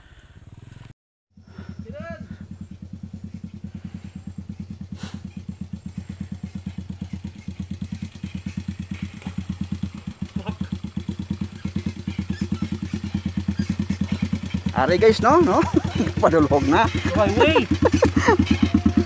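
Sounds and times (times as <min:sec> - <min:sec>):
motorbike engine putting: 0:00.5 - 0:19.0.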